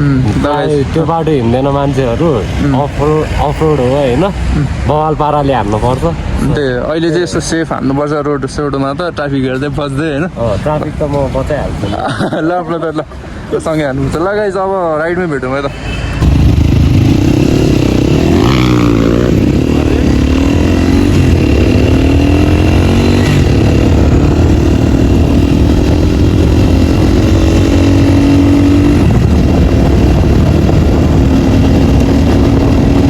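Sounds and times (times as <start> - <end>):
dirt bike engine revving: 16.2 - 33.0.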